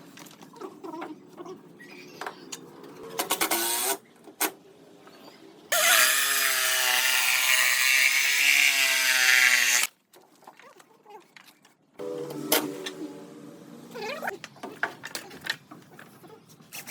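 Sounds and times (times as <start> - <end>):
electric power tool on wood: 5.7 - 9.9.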